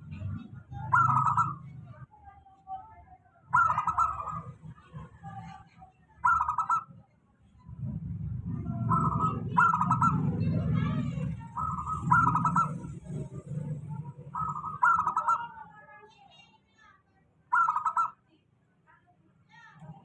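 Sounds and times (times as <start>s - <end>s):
dove cooing and trilling: 0.3s - 1.8s, 3.5s - 4.6s, 6.2s - 6.9s, 8.6s - 15.6s, 17.5s - 18.2s
low rumble: 7.5s - 14.8s.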